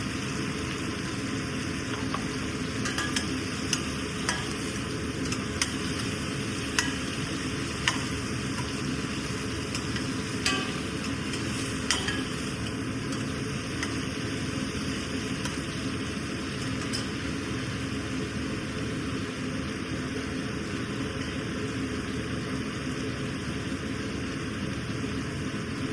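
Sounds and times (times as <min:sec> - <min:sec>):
food sizzling in a pan: 0:00.0 - 0:25.9
metal spoon clinking on pan: 0:01.9 - 0:14.3, 0:16.6 - 0:17.3.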